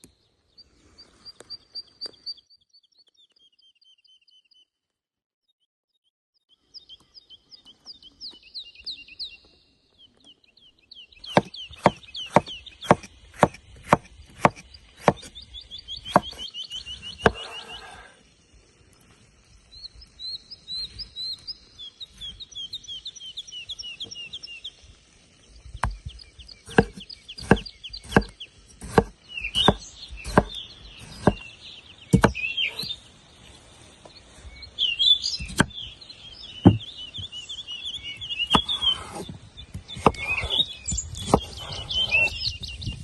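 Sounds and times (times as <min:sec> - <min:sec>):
songbirds chirping: 0:00.0 - 0:05.1, 0:06.0 - 0:43.0
sharp irregular knocks: 0:32.1 - 0:32.4, 0:36.6 - 0:36.9.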